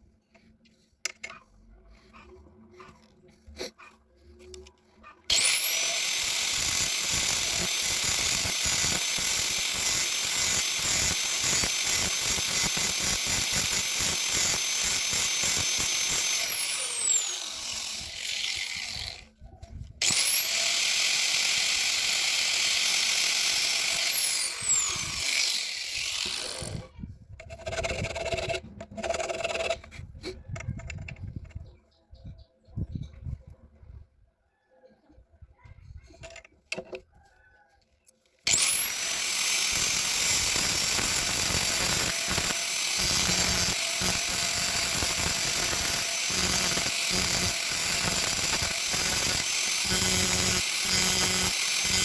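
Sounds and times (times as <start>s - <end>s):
drill press motor whining: 5.3s - 19.2s, 20.0s - 26.8s, 38.5s - 52.0s.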